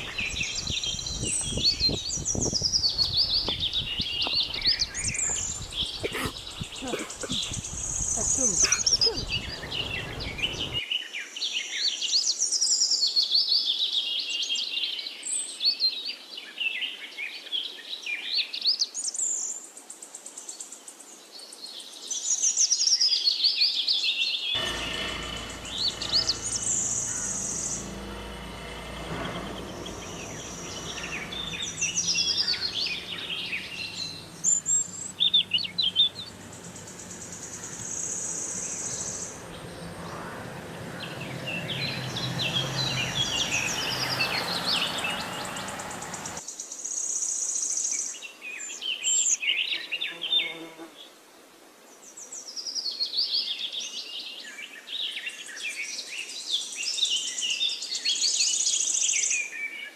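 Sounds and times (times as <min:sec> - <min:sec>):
birds chirping and twittering: 0:00.0 - 0:10.8, 0:24.6 - 0:46.4
low background hum: 0:24.6 - 0:46.4.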